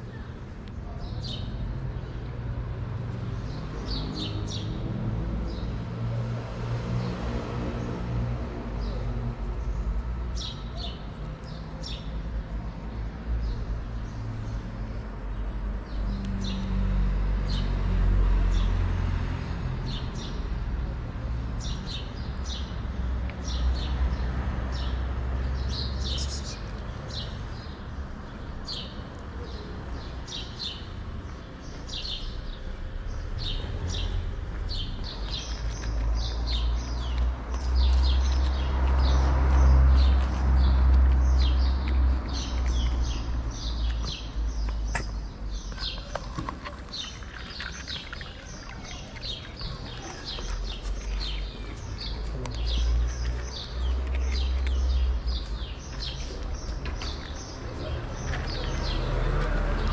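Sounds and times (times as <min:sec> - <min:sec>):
small birds chirping: 0:08.7 - 0:16.8, 0:19.9 - 0:59.9.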